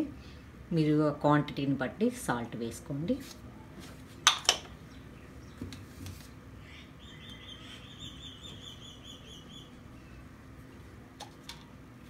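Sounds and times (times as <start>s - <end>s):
bird chirping: 6.6s - 10.2s.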